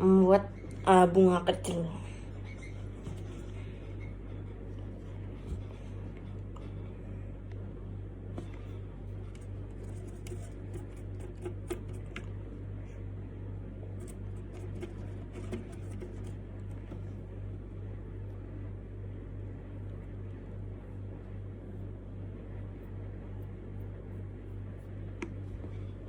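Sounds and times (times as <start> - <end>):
low electrical hum: 0.0 - 26.0
paintbrush taps and scrapes: 8.4 - 12.3, 14.0 - 17.1.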